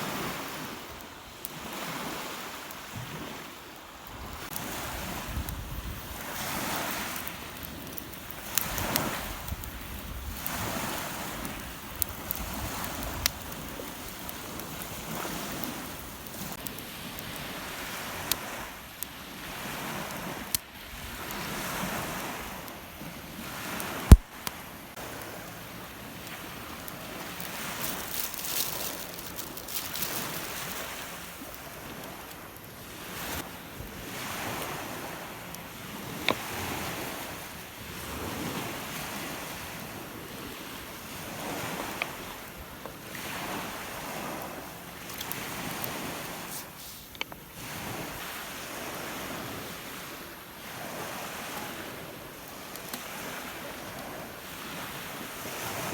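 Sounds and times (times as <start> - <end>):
lake waves breaking on shore: 0.0 - 55.9
wind on microphone: 4.0 - 16.4.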